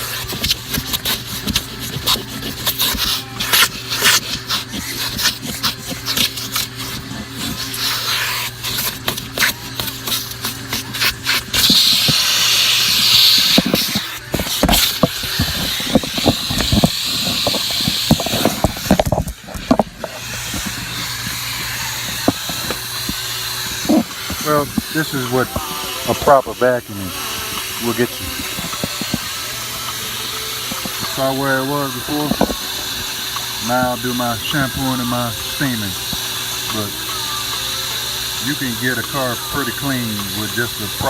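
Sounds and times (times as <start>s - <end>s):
nozzle knocking and scraping carpet: 0.0s - 26.8s, 27.4s - 29.4s, 30.6s - 32.7s
vacuum cleaner running: 0.0s - 41.0s.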